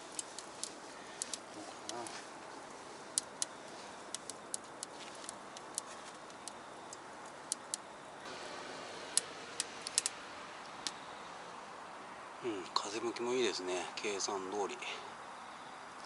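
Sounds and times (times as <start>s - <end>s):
wood fire crackling and popping: 0.0s - 7.9s, 9.0s - 11.0s
low hiss of fire: 0.0s - 12.4s.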